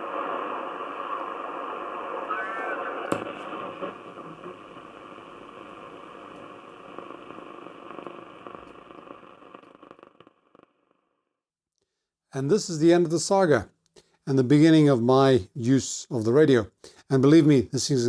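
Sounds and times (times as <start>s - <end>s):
shortwave radio broadcast with static: 0.0s - 9.8s
warbling whistle: 1.9s - 3.9s.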